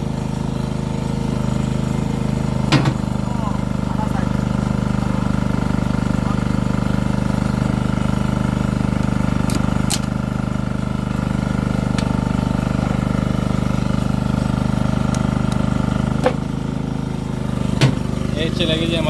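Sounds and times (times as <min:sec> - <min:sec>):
engine droning: 0:00.0 - 0:19.0
sharp knocks: 0:17.8 - 0:18.1.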